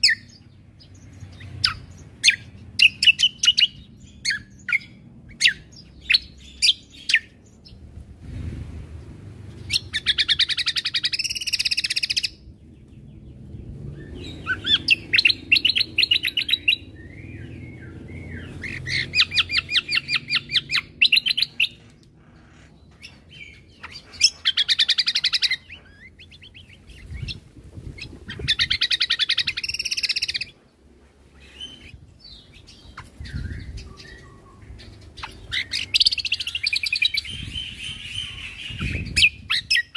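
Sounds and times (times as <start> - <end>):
songbird chattering trills: 31.4 - 39.9.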